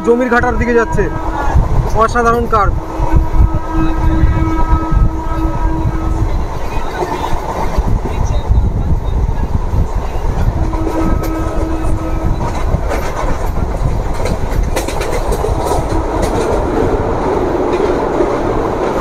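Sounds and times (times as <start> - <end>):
train wheels rumbling on rail: 0.0 - 19.0
wind on microphone: 0.4 - 19.0
wheels clicking over rail joints: 12.4 - 19.0.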